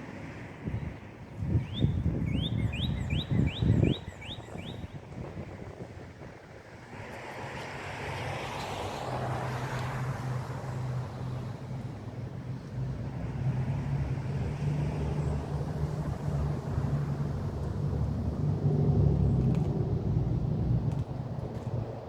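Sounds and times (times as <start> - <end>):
diesel locomotive engine drone: 9.0 - 22.0.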